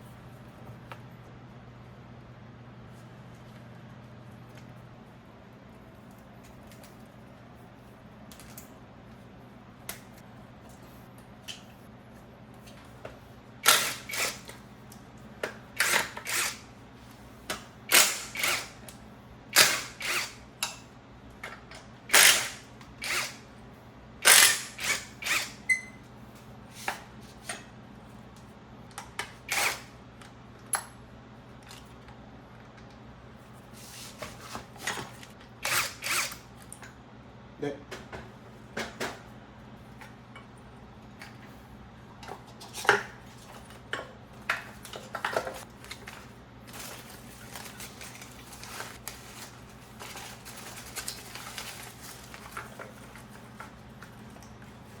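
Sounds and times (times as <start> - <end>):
low steady hum: 0.0 - 55.0
power drill bursts: 13.6 - 14.4, 17.9 - 18.8, 19.6 - 20.4, 22.1 - 23.4, 24.2 - 25.6.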